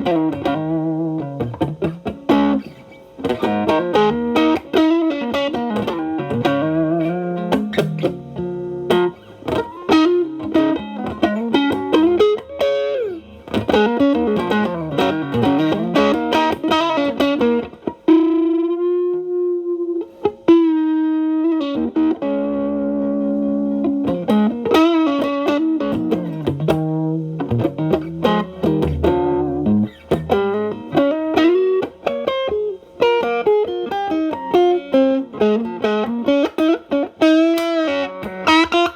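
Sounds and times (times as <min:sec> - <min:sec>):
distorted electric guitar lead: 0:00.0 - 0:38.9.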